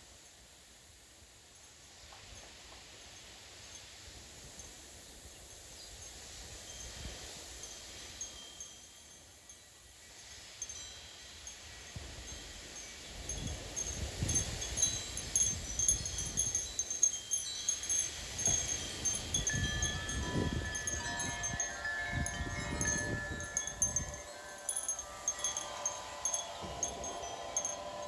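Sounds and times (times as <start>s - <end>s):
wind chimes ringing: 6.7s - 9.7s, 10.6s - 28.0s
wind gusts rumbling: 17.8s - 28.0s.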